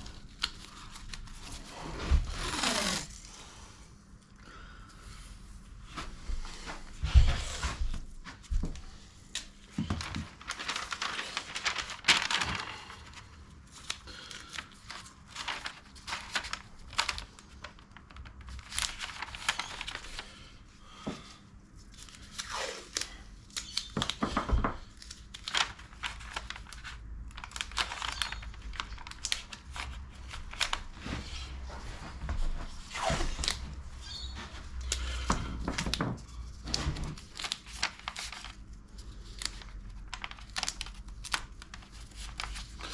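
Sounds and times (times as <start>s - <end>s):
material crinkling and tearing: 0.0s - 3.3s, 9.3s - 20.3s, 21.8s - 31.2s, 35.7s - 42.9s.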